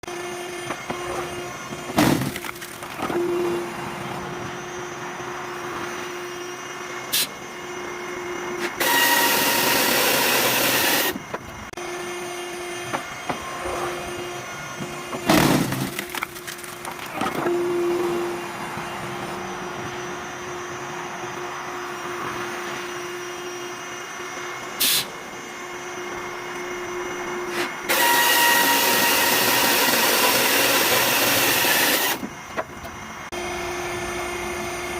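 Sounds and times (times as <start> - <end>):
wood splitter machine humming: 0.0 - 34.9
wood cracking and splitting: 1.9 - 3.1, 15.3 - 17.5.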